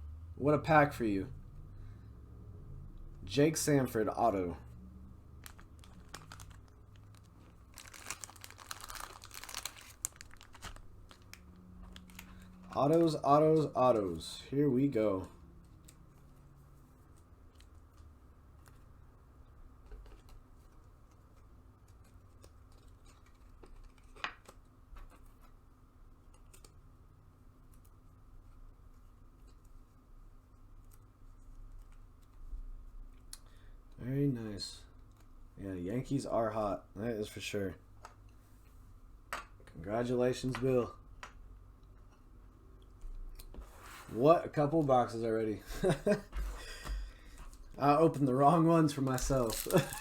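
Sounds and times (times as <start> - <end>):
card packaging crinkling: 5.4 - 14.2, 48.2 - 50.0.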